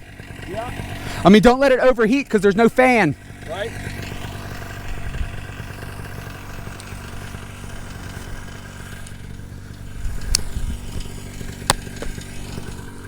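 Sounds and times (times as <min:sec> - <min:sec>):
paramotor engine idling: 0:00.0 - 0:13.0.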